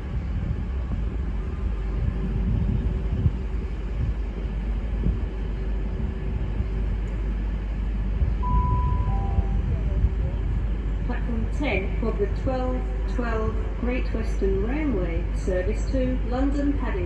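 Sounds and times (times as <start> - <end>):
passenger train rumbling: 0.0 - 17.0
faint steady hum: 1.3 - 17.0
station announcement chime: 8.4 - 9.9.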